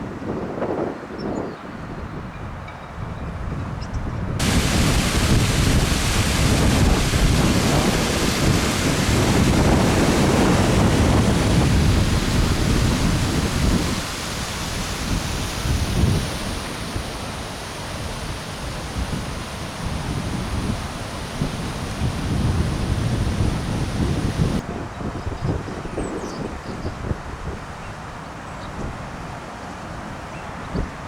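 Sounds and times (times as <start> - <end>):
wind buffeting microphone: 0.0 - 17.4, 18.0 - 29.2
rain hiss: 4.4 - 24.6.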